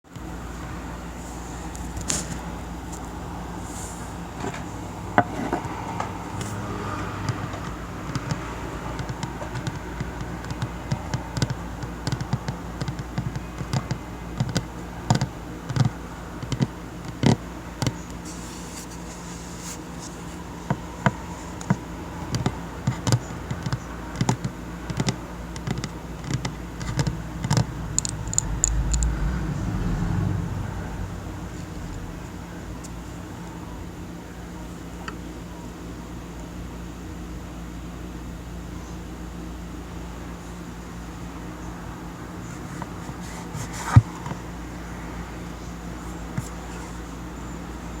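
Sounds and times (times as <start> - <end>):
low background hum: 0.1 - 48.0.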